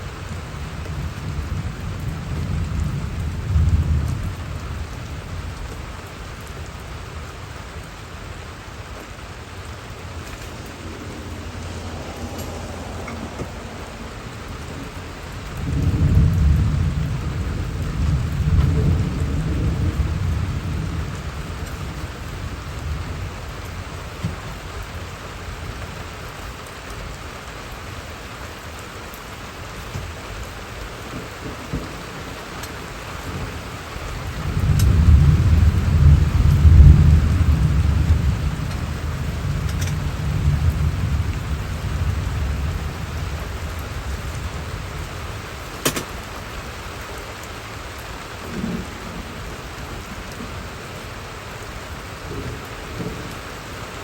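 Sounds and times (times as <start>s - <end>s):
rolling thunder: 0.0s - 26.2s, 31.2s - 47.0s
steady rain falling: 0.0s - 54.0s.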